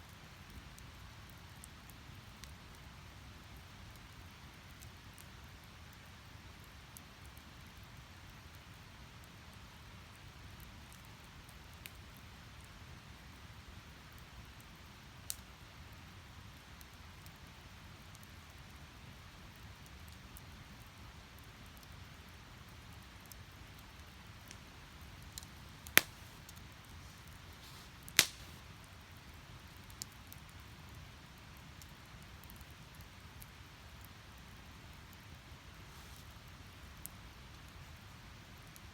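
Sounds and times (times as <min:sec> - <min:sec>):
logs popping: 0:24.5 - 0:28.7
rush of flame: 0:25.3 - 0:28.7.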